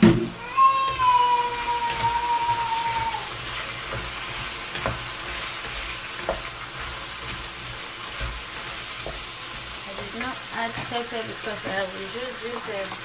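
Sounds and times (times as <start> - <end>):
vegetables sizzling in a frying pan: 0.0 - 13.0
spatula knocking against pan: 6.2 - 6.5.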